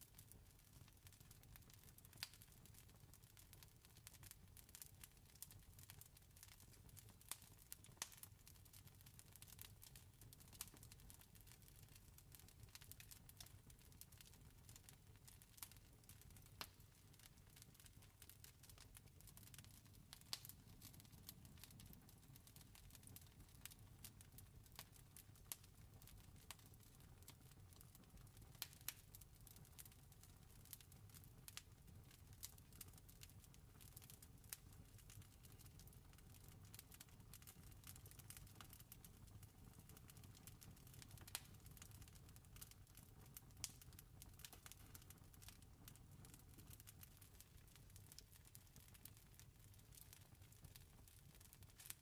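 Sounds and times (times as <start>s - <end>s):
wood fire crackling: 0.0s - 52.0s
fire pops and snaps: 7.0s - 8.3s, 15.5s - 26.6s, 28.5s - 29.2s, 34.5s - 47.2s, 49.9s - 52.0s
campfire crackling: 15.5s - 26.6s, 31.4s - 31.6s, 34.0s - 42.8s, 43.6s - 47.0s.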